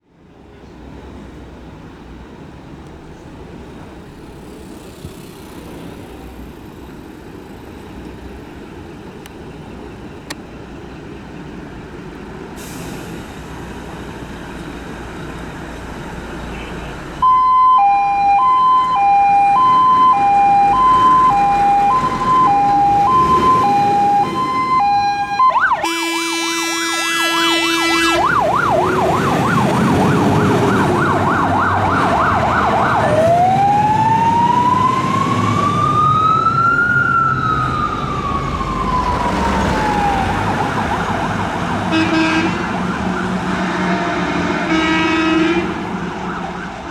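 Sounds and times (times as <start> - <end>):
fire engine engine running: 0.0 - 46.9
two-tone siren: 17.2 - 46.9
horn blast: 25.7 - 28.4, 41.9 - 46.1.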